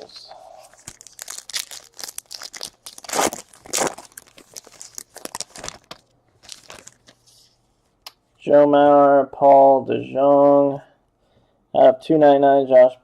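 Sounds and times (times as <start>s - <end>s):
cards rustling: 0.0s - 7.6s
wrapper crinkling and tearing: 0.7s - 7.2s.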